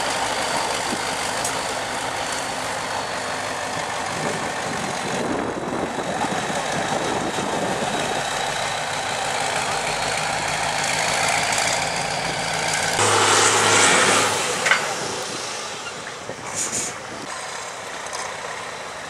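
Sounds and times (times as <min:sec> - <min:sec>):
truck engine running: 0:00.0 - 0:19.0
air hiss: 0:13.0 - 0:17.2.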